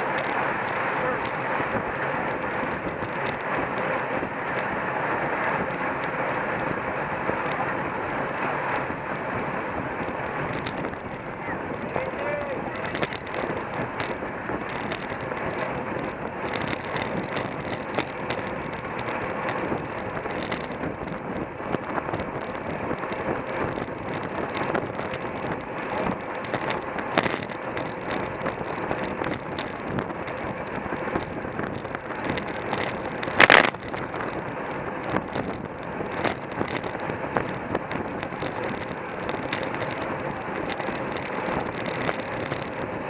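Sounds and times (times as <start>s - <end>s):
bicycle rattling and clicking: 0.0s - 43.0s
wind rushing over microphone: 0.0s - 43.0s.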